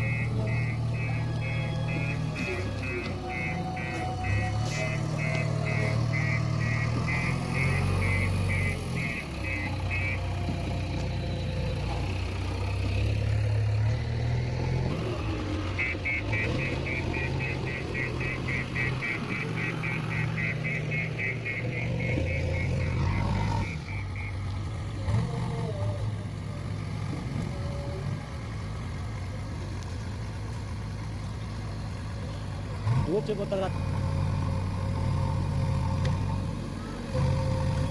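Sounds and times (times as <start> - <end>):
reversing alarm beeping: 0.0 - 10.5, 15.7 - 24.4
diesel engine running: 0.0 - 37.9.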